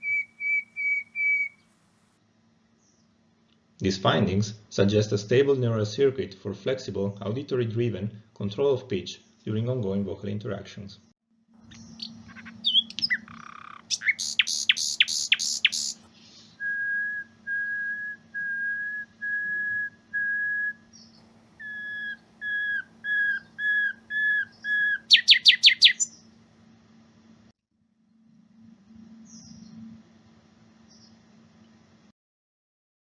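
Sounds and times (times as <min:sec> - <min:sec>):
nightingale singing: 0:00.0 - 0:01.7, 0:11.7 - 0:26.3.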